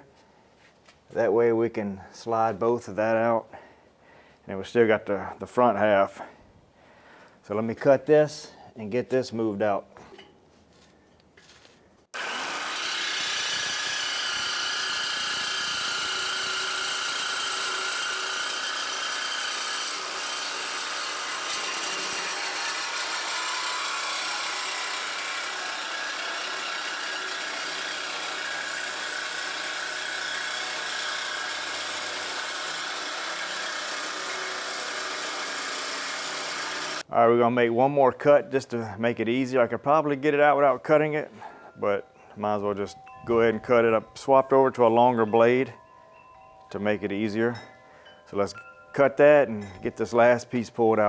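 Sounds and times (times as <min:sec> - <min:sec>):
reciprocating saw cutting pipe: 0:12.1 - 0:37.1.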